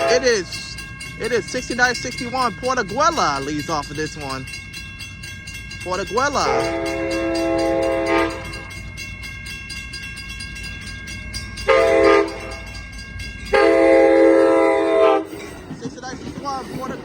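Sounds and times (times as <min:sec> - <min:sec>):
train horn blasts: 0:00.0 - 0:00.5, 0:06.5 - 0:08.7, 0:11.6 - 0:12.7, 0:13.5 - 0:15.4
crossing bells ringing: 0:00.0 - 0:17.0.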